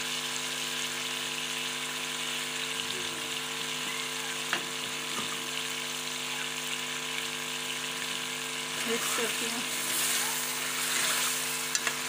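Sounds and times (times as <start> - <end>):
chicken frying in hot oil: 0.0 - 12.0.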